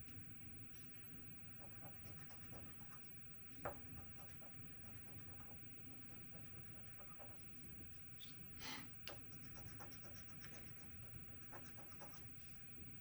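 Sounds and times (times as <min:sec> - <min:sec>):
scratching lottery ticket: 0:09.3 - 0:12.4.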